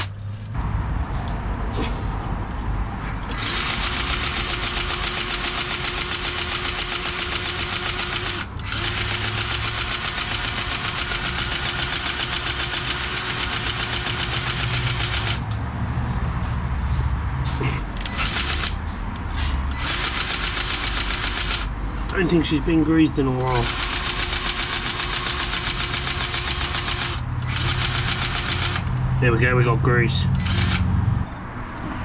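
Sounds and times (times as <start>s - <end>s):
grease gun motor whining: 3.1s - 15.6s, 18.0s - 18.8s, 19.7s - 22.4s, 23.3s - 29.0s, 30.3s - 30.9s.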